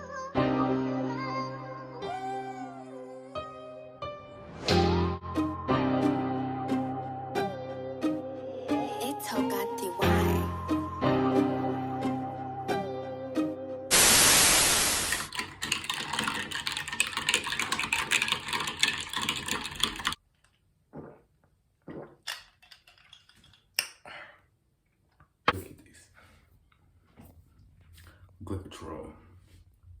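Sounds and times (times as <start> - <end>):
music: 0.0 - 13.9
burst of static hiss: 13.9 - 15.3.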